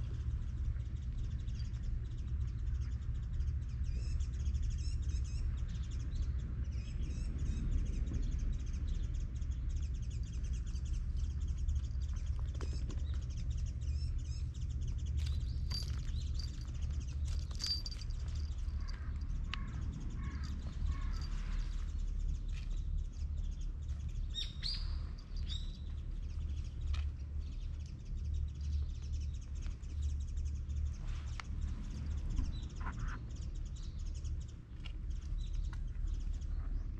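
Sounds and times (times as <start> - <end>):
small birds chirping: 0.0 - 36.9
steady low rumble: 0.0 - 36.9.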